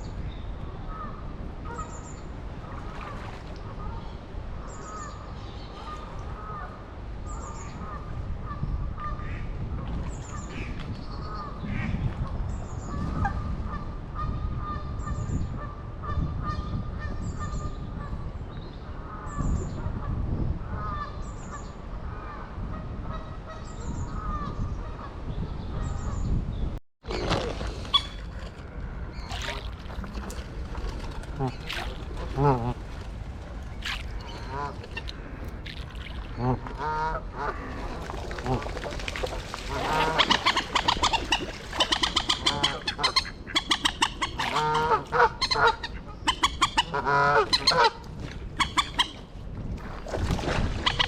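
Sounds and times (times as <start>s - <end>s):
geese honking: 39.6s - 48.0s.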